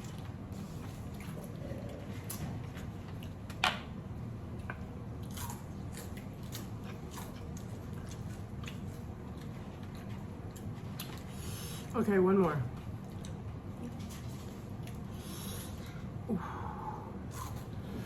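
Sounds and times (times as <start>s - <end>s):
chewing crunchy crab shell: 4.6s - 11.4s.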